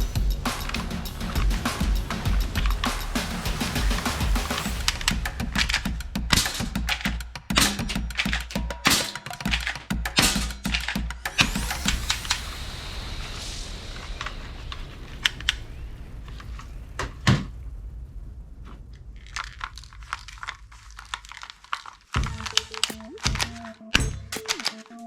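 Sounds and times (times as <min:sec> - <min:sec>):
handling clicks and knocks: 0:04.8 - 0:11.4, 0:19.4 - 0:25.0
plastic packaging crinkling: 0:18.9 - 0:25.0.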